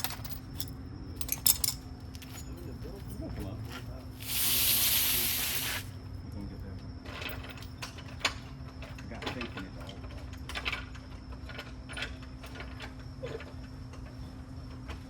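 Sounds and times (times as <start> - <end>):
metallic tool clicks and clanks: 0.0 - 2.5.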